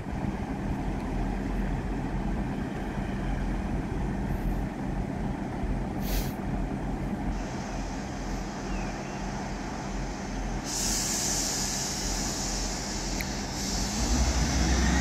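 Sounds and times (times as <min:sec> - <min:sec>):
train engine rumble and hum: 0:00.0 - 0:15.0
air hiss: 0:06.0 - 0:06.4, 0:07.3 - 0:15.0.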